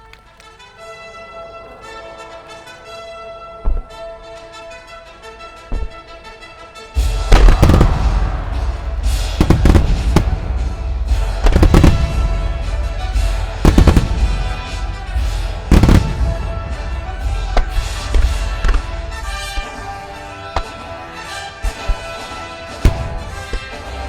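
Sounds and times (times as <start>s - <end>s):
music playing: 0.0s - 24.0s
fireworks booming: 7.0s - 24.0s.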